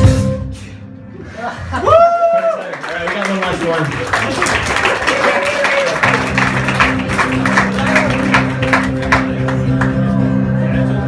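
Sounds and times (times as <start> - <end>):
live rock band playing: 0.0 - 1.1, 6.0 - 11.0.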